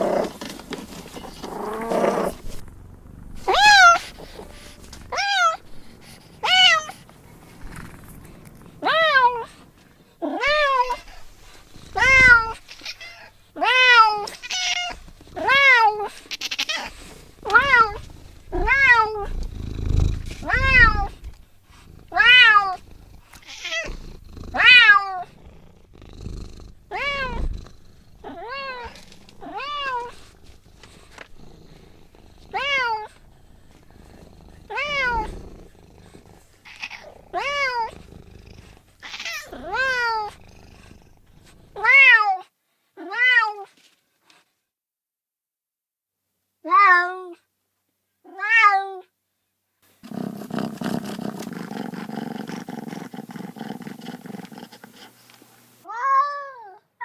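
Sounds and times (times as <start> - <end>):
cat meowing: 3.4 - 5.6, 6.4 - 7.0, 11.9 - 19.4, 20.4 - 21.2, 22.1 - 22.8, 23.4 - 25.3, 26.9 - 27.5, 32.5 - 33.2, 34.7 - 35.4, 39.0 - 40.4.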